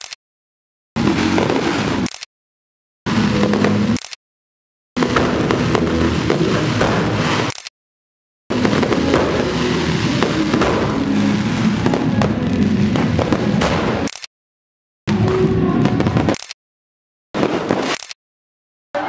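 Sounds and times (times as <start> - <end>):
fireworks popping and crackling: 1.0 - 2.3, 3.1 - 4.1, 5.0 - 7.7, 8.5 - 14.3, 15.1 - 16.6, 17.4 - 18.2.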